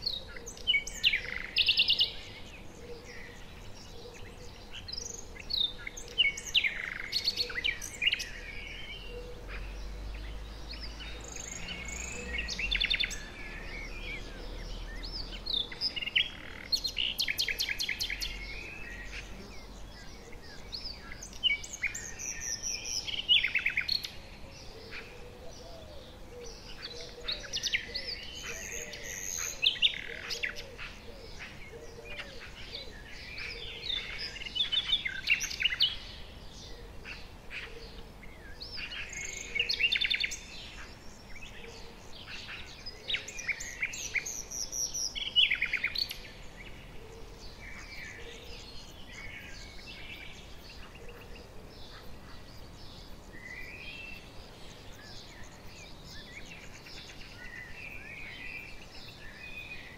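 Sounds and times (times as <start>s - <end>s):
small birds singing and chirping: 0.0s - 59.9s.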